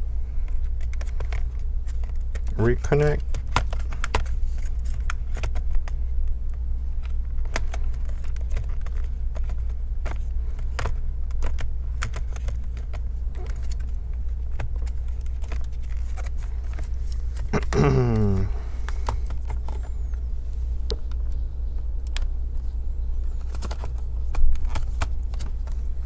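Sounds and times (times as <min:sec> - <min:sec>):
clicks and taps of laptop parts: 0:00.5 - 0:02.6, 0:03.2 - 0:06.0, 0:07.0 - 0:17.5, 0:23.4 - 0:25.8.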